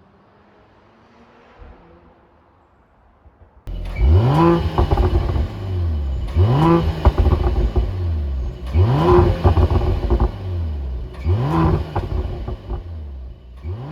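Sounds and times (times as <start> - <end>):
exhaust crackling and popping: 3.6 - 13.9
car engine revving: 3.7 - 13.9.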